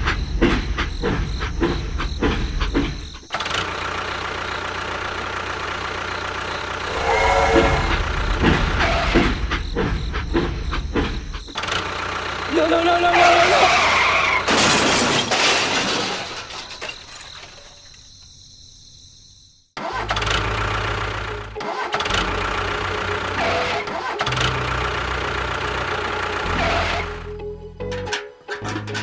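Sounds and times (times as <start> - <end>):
vehicle engine: 6.7 - 12.6
music: 6.8 - 9.5, 21.1 - 29.0.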